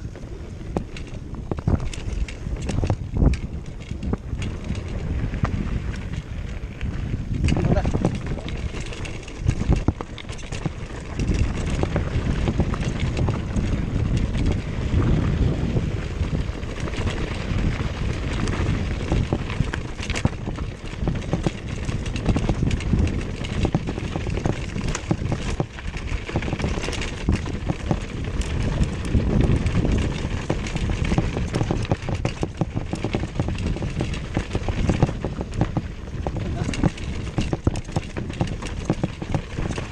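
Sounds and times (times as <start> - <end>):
wind buffeting microphone: 0.0 - 39.9
rattles and knocks: 7.4 - 14.6, 18.4 - 39.9.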